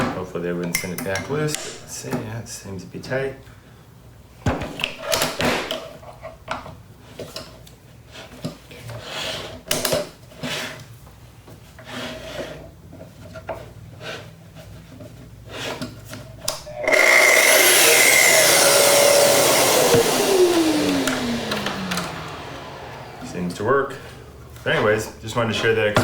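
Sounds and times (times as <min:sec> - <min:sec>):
track saw whining: 0:16.5 - 0:26.0.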